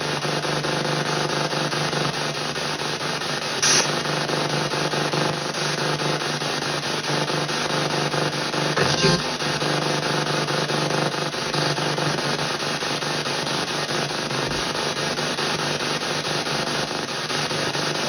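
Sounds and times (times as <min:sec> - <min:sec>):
choppy radio static: 0:03.6 - 0:04.1, 0:08.7 - 0:09.6.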